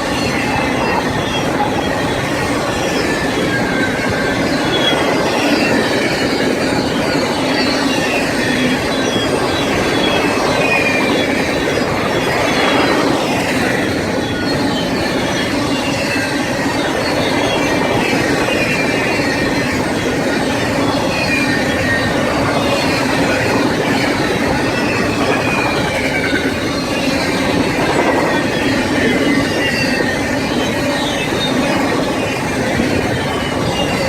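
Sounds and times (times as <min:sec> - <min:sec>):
freight train cars rolling: 0:00.0 - 0:34.0
wheel squeals: 0:00.0 - 0:34.0.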